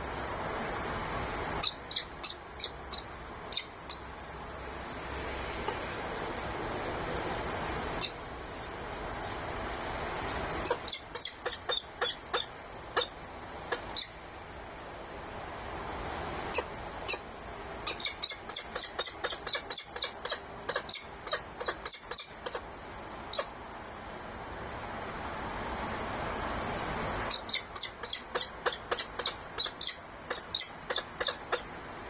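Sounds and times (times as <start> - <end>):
steady background hiss: 0.0 - 32.0
high-pitched bird calls: 1.6 - 4.1, 8.0 - 8.2, 10.6 - 14.2, 16.5 - 22.6, 27.3 - 31.7.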